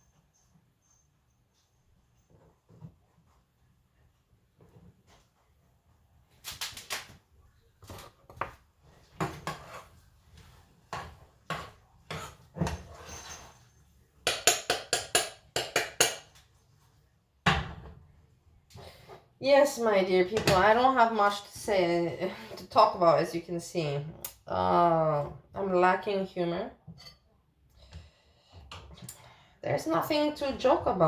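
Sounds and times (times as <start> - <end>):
kitchen utensils knocking and scraping: 9.1 - 10.0, 10.9 - 16.4, 20.2 - 21.4.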